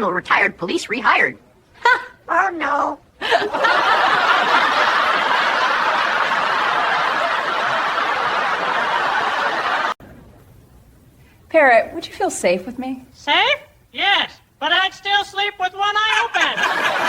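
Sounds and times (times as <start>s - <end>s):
crowd laughing: 3.2s - 10.0s, 16.1s - 17.0s.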